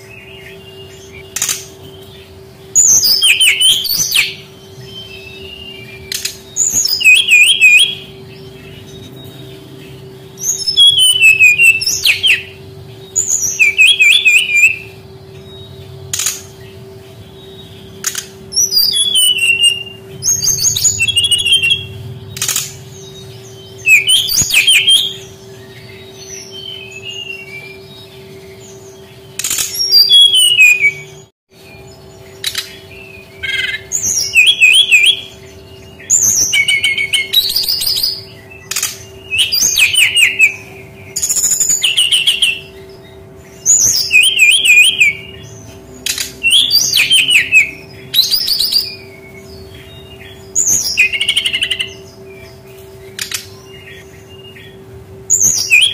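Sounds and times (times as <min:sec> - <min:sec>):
low hum: 0:00.0 - 0:55.7
bird singing warbling phrases: 0:00.0 - 0:55.9
sharp clicks: 0:22.3 - 0:22.8.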